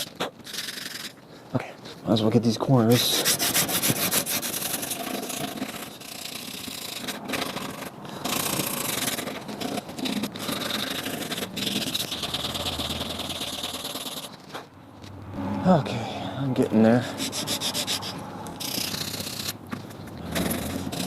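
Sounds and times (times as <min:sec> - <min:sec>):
sandpaper scratching on wood: 0:02.9 - 0:14.4, 0:17.0 - 0:19.6, 0:20.3 - 0:21.0.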